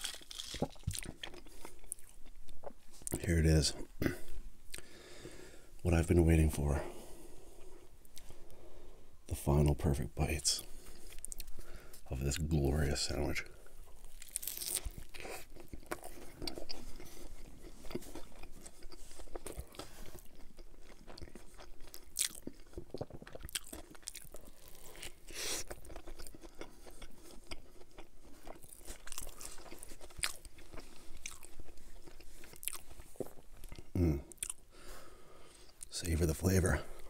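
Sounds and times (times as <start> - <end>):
crunchy biting: 0.0 - 3.2, 14.0 - 34.6
wet chewing: 13.8 - 34.6.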